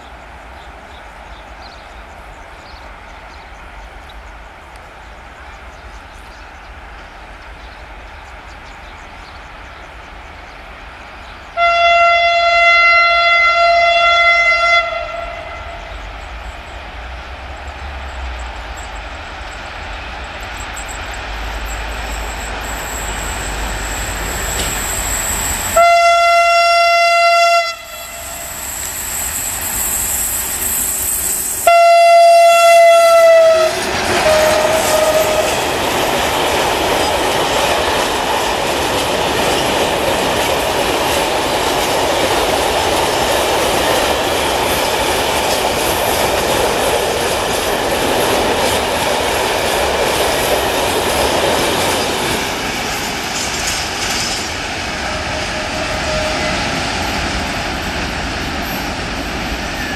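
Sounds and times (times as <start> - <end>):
freight train rumble: 0.0 - 59.9
locomotive horn blasts: 11.6 - 16.0, 25.6 - 28.5, 31.6 - 35.6, 55.0 - 56.8
wheels clattering over rail joints: 17.5 - 25.8.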